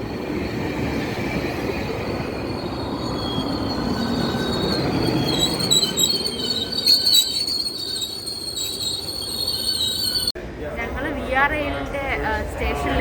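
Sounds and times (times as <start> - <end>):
train rumbling on rails: 0.0 - 13.0
steel wheels squealing: 0.6 - 10.4.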